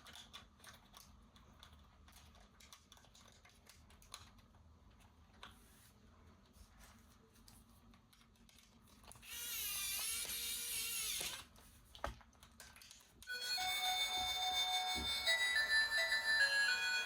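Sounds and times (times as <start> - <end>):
toy motor whirring: 9.1 - 11.5, 13.3 - 17.0
electronic toy tune: 13.3 - 17.0.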